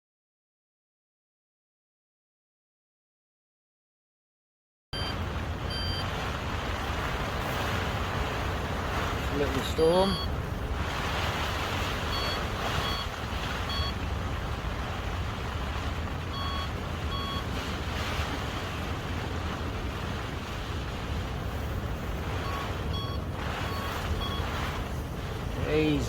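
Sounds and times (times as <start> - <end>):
short electronic beeps: 5.0 - 6.1, 9.9 - 10.3, 12.1 - 14.0, 16.3 - 17.6, 22.4 - 24.6
wind buffeting microphone: 5.0 - 26.0.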